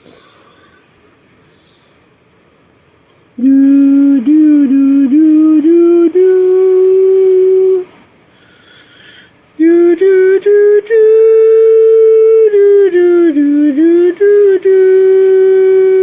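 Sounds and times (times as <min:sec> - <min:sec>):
person humming a tune: 0:03.4 - 0:08.0, 0:08.6 - 0:16.0.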